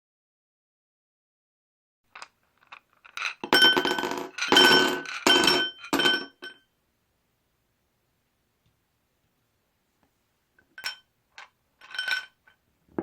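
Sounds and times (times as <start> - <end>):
ice cubes clinking: 2.2 - 6.5.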